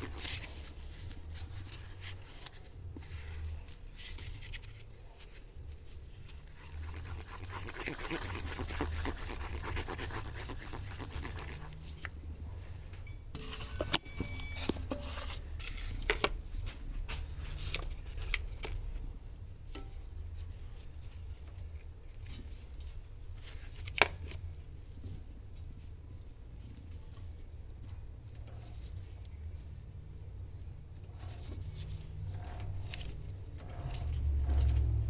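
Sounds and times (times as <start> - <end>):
steady low hum: 0.0 - 14.1
rasping scrape: 6.5 - 12.1.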